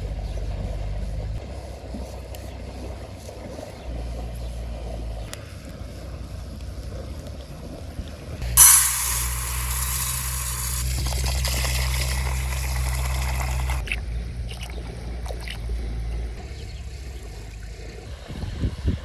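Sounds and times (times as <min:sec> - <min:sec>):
low steady hum: 0:00.0 - 0:19.0
fish sizzling in hot oil: 0:08.5 - 0:13.8.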